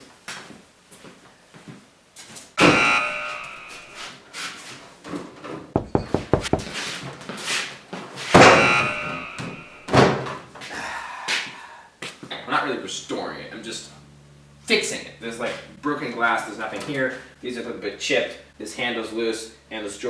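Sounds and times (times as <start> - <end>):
cabinet doors slamming: 5.8 - 6.7.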